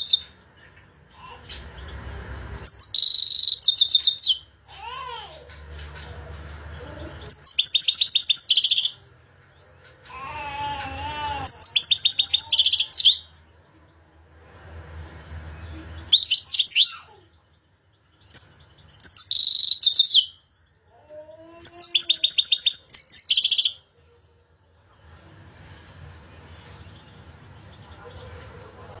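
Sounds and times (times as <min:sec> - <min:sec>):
finch twittering song: 0:00.0 - 0:04.6, 0:05.5 - 0:10.2, 0:11.4 - 0:13.7, 0:15.0 - 0:23.9.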